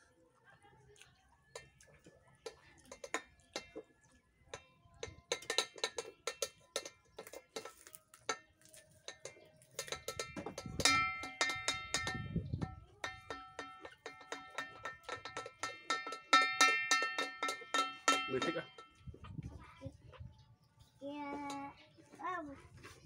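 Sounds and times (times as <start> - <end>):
chewing raw leafy vegetables: 0.0 - 4.4, 7.1 - 9.8.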